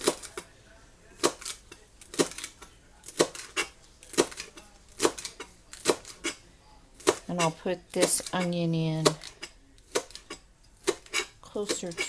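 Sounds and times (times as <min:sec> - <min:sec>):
knife chopping on cutting board: 0:00.0 - 0:00.5, 0:01.2 - 0:06.4, 0:07.0 - 0:12.0.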